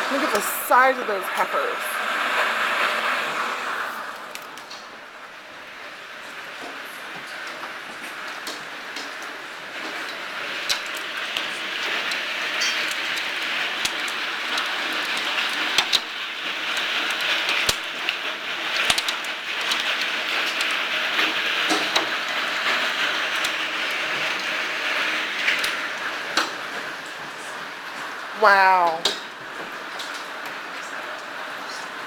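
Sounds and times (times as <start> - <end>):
hail and rain pelting: 0.0 - 32.0
hailstones striking: 7.3 - 27.0.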